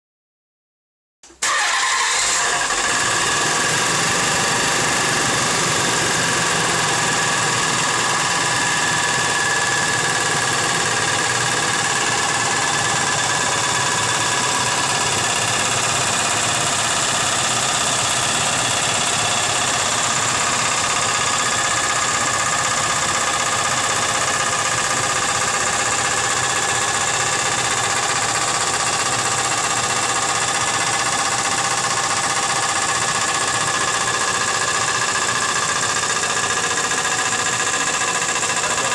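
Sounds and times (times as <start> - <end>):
car engine running: 1.6 - 38.9
rapid knocking tick: 26.4 - 38.9.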